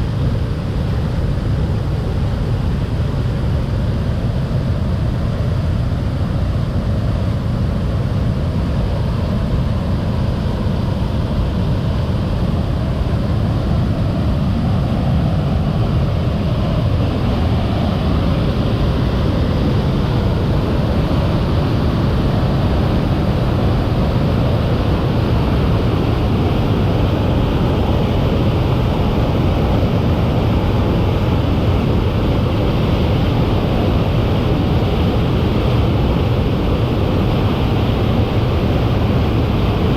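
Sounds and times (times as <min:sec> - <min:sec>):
waterfall rushing: 0:14.4 - 0:39.9.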